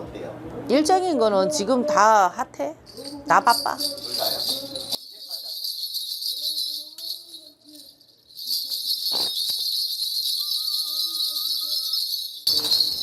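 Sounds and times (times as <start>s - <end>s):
high jingling of small bells: 2.9s - 13.0s.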